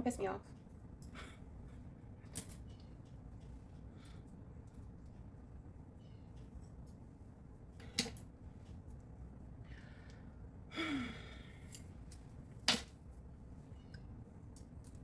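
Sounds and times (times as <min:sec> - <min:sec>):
person sighing: 0:10.7 - 0:11.5.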